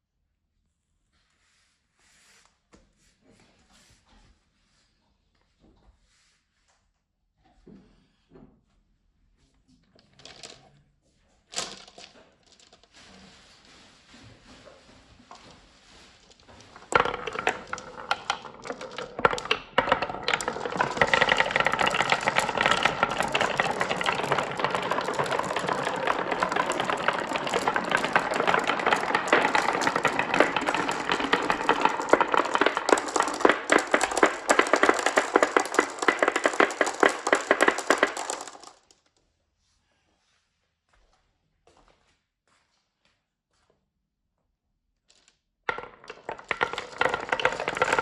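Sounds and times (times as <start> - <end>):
marbles rattling down a track: 16.2 - 38.9, 45.7 - 48.0.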